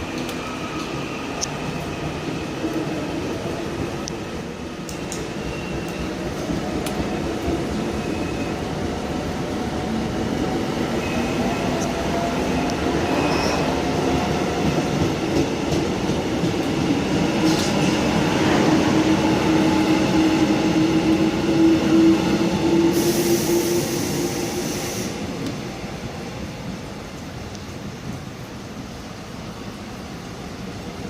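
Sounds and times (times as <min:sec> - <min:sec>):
electric train rumble and hum: 0:00.0 - 0:31.0
hiss: 0:22.8 - 0:25.6.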